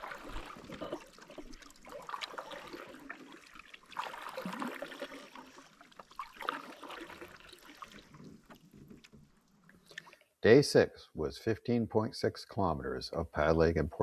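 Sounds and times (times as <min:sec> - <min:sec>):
water trickling and splashing: 0:00.0 - 0:10.4.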